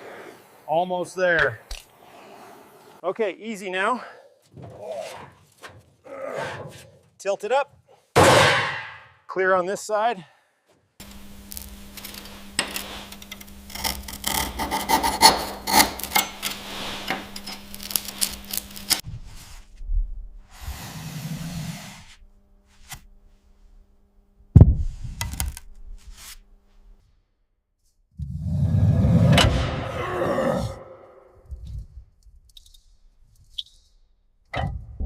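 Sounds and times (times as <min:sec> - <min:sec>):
metal scraping and rasping: 0:11.0 - 0:19.0
steady low hum: 0:11.0 - 0:27.0.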